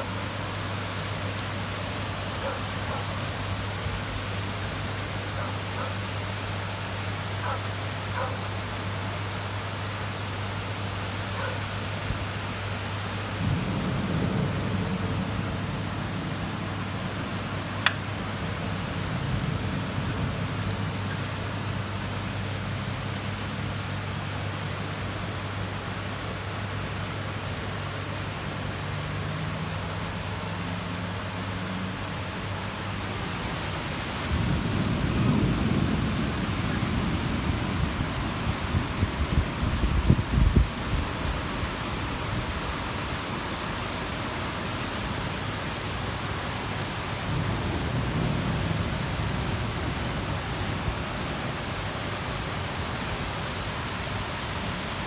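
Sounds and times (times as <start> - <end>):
heavy rain falling: 0.0 - 55.0
thunder rumbling: 13.3 - 21.0, 33.2 - 41.5.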